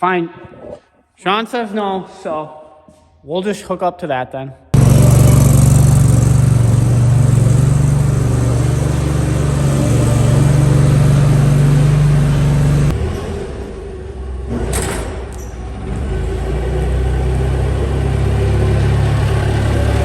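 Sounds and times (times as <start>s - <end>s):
forklift engine idling: 4.8s - 13.0s, 16.2s - 20.0s.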